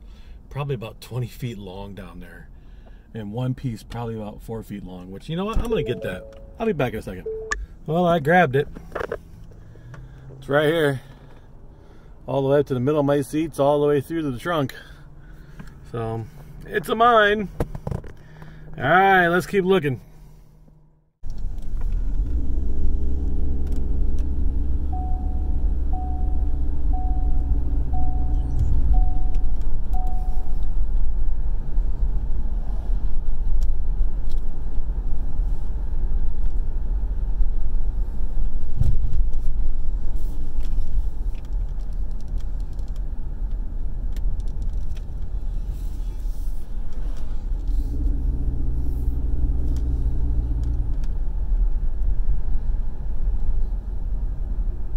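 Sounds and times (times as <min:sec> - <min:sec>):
car road and engine rumble: 0:00.0 - 0:54.9
warning chime beeping: 0:05.6 - 0:07.6, 0:24.9 - 0:30.5.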